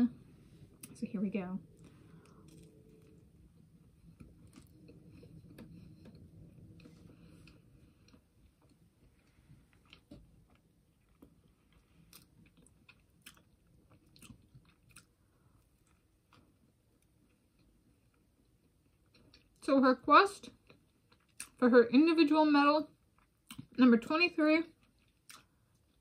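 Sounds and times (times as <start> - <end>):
faint biting and chewing: 1.7 - 19.6, 23.0 - 23.8, 24.7 - 26.0.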